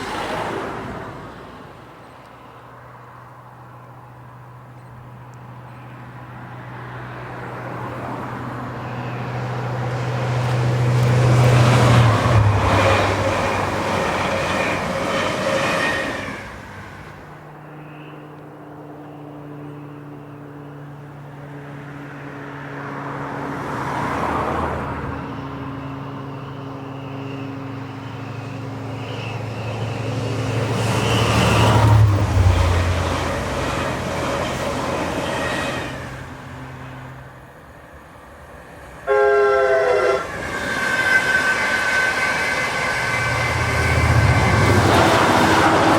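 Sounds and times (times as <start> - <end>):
diesel locomotive passing: 0.0 - 45.9.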